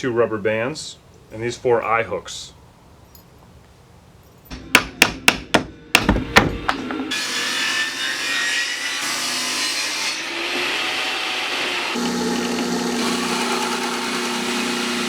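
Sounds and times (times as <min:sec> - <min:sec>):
tool scraping wood: 0:12.0 - 0:15.0.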